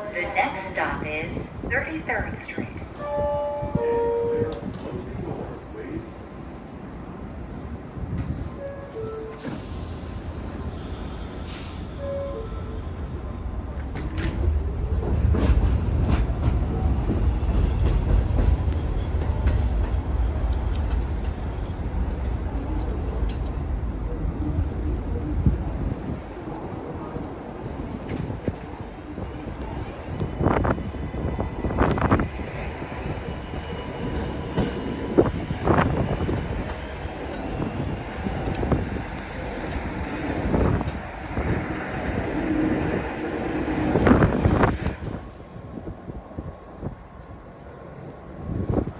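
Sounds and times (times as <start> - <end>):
subway train rumble: 0.0 - 48.9
wheels clacking on rails: 13.2 - 24.9.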